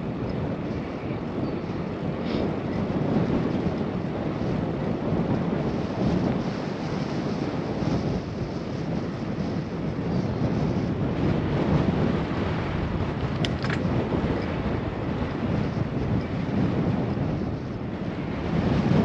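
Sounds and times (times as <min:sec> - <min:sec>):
wind rushing over microphone: 0:00.0 - 0:19.0
brief clicks: 0:13.3 - 0:13.9.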